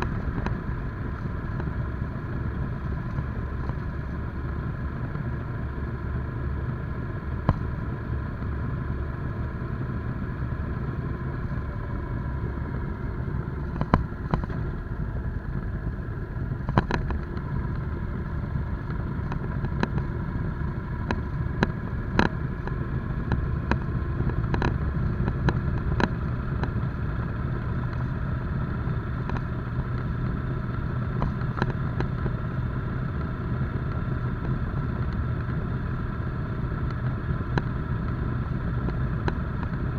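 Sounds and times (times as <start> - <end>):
motorcycle engine running: 0.0 - 39.9
sharp clicks and knocks: 13.6 - 14.9, 16.6 - 20.2, 20.9 - 26.9, 31.2 - 32.3.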